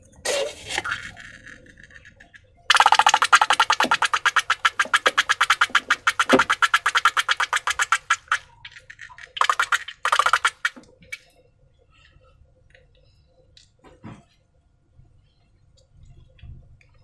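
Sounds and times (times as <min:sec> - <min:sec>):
slime clicking and squelching: 0:02.7 - 0:08.4, 0:09.3 - 0:11.2.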